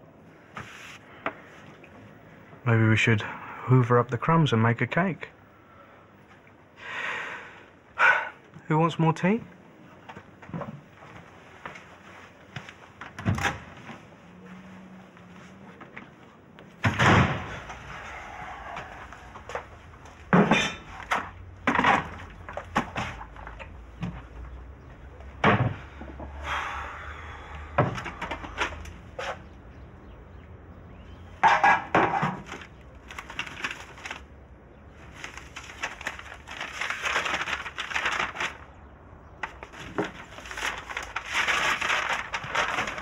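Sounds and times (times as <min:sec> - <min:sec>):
crockery and cutlery clattering: 0:20.3 - 0:22.3.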